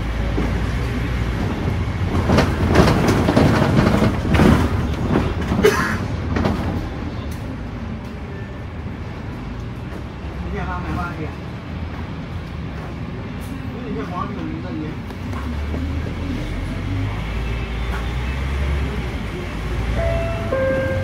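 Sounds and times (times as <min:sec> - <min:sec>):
bus engine rumble: 0:00.0 - 0:21.0
rattling and clattering: 0:01.4 - 0:06.9.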